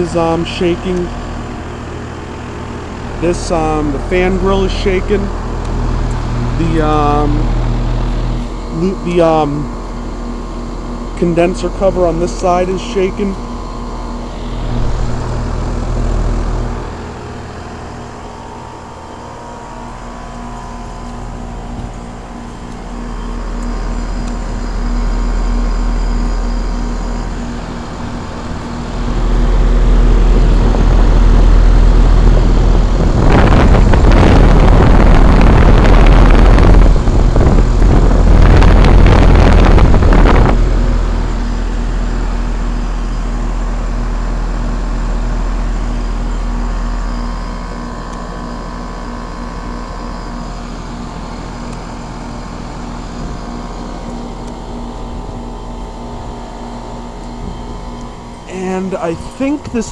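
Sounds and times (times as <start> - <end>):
condenser fan running: 0.0 - 59.9
heat pump compressor hum: 0.0 - 59.9
loud rushing noise: 14.4 - 17.0.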